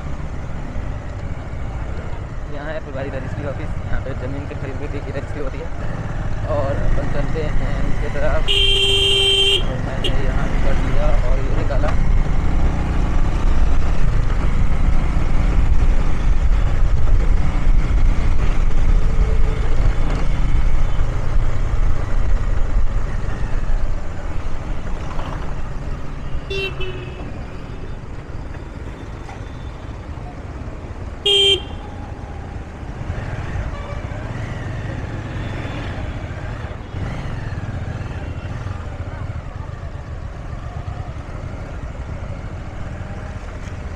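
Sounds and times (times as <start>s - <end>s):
motorbike engine rumble: 7.7s - 35.2s
vehicle horn beeping: 8.5s - 10.1s, 26.4s - 27.4s, 31.2s - 32.0s, 33.7s - 34.2s.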